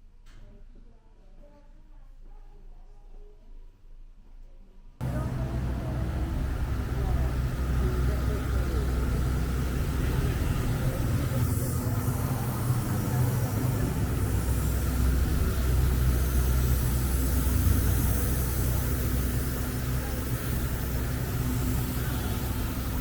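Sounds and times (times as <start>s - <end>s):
moving vehicle rumble: 5.0s - 23.0s.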